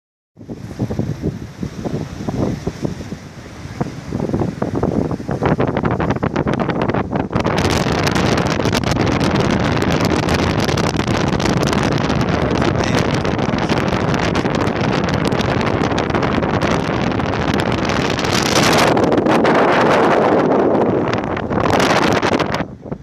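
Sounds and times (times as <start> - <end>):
wind buffeting microphone: 0.4 - 23.0.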